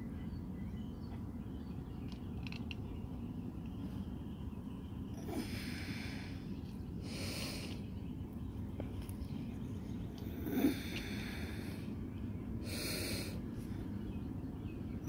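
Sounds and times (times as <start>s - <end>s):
low background rumble: 0.0s - 15.0s
breathy snorting huffs: 10.3s - 11.9s, 12.6s - 13.4s.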